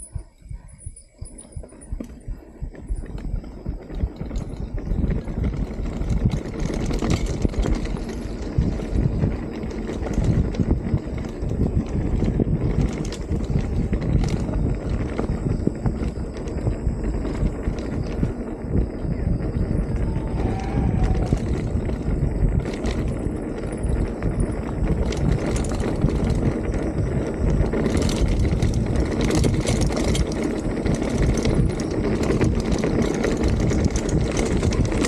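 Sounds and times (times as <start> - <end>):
bike rattling over bumps: 0.0 - 35.0
bike tyres rumbling on dirt: 0.0 - 35.0
wind on microphone: 0.0 - 35.0.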